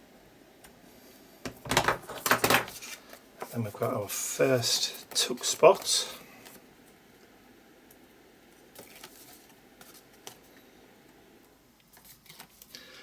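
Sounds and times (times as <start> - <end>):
paper and card rustling: 8.7 - 10.5, 11.9 - 13.0.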